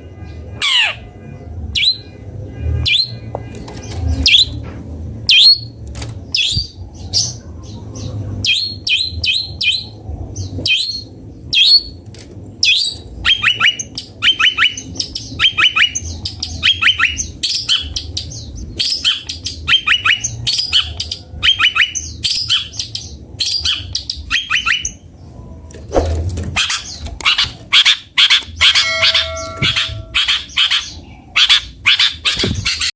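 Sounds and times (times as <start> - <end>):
shrike singing chirps: 26.7 - 32.2.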